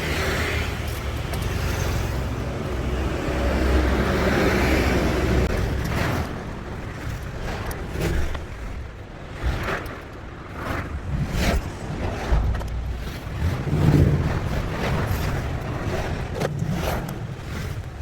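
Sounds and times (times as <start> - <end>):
low rumbling handling noise: 5.2 - 18.0.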